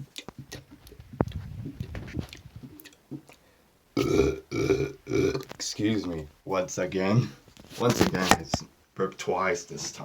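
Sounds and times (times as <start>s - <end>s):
man burping loudly: 4.0s - 5.5s.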